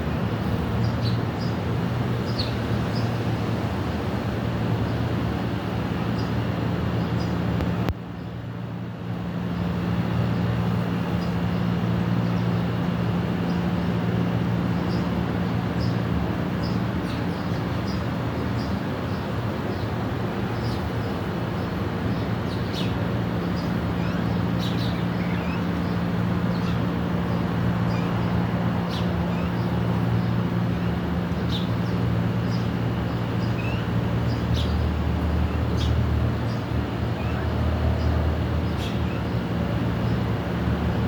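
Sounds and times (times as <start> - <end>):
traffic hum: 0.0 - 41.0
birds chirping: 20.6 - 35.0, 35.6 - 40.3.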